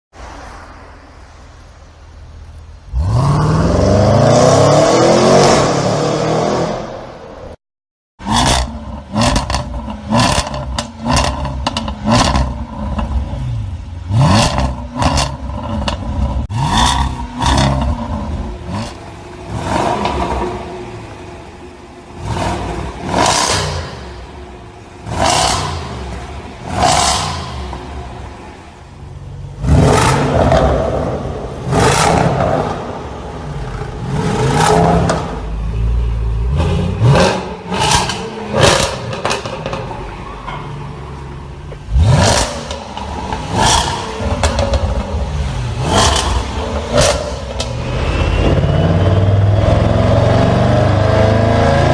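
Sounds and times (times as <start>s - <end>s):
car engine revving: 2.8s - 7.2s, 8.2s - 51.9s
exhaust crackles and pops: 8.4s - 13.4s.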